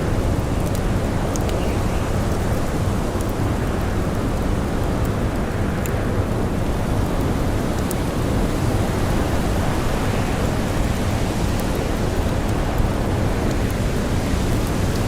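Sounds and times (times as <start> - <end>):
campfire crackles: 0.0 - 15.0.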